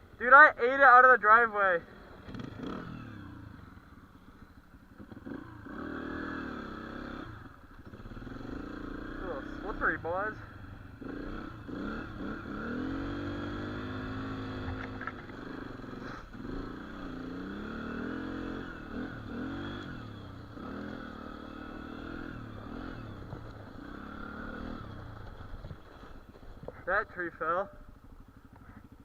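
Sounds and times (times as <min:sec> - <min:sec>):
dirt bike engine revving: 0:00.1 - 0:29.0.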